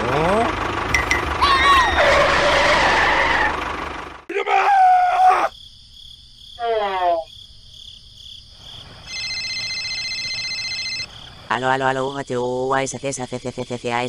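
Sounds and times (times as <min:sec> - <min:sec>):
tractor engine running: 0:00.0 - 0:04.3
electronic phone ringing: 0:09.1 - 0:11.1.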